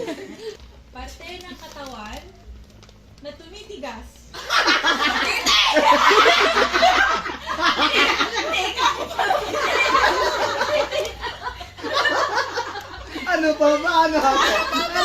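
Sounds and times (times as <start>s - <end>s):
group of people laughing: 0.0s - 0.6s, 4.4s - 15.0s.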